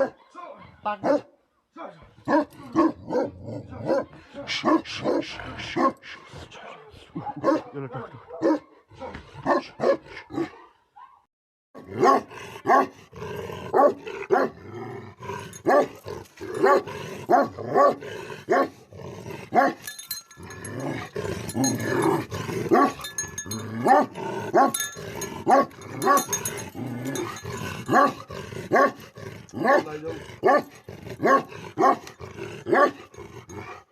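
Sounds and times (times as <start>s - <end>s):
dog barking: 0.0s - 1.4s, 2.2s - 6.1s, 7.2s - 13.0s, 13.7s - 14.6s, 15.6s - 18.8s, 19.5s - 19.8s, 22.7s - 23.1s, 23.7s - 24.8s, 25.4s - 26.6s, 27.2s - 29.0s, 29.6s - 32.1s, 32.7s - 33.0s.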